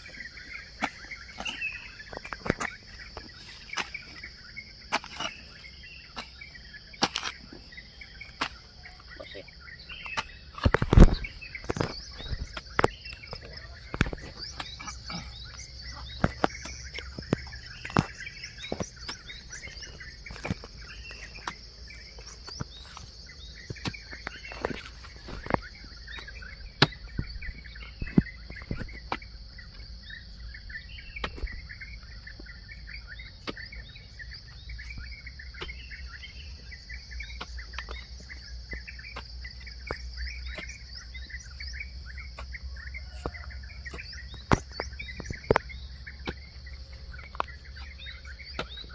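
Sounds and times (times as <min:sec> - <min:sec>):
birds chirping: 0:00.0 - 0:48.9
high insect drone: 0:00.0 - 0:48.9
hoe blades striking soil: 0:00.1 - 0:07.6, 0:08.2 - 0:09.2, 0:09.9 - 0:27.3, 0:43.1 - 0:48.9.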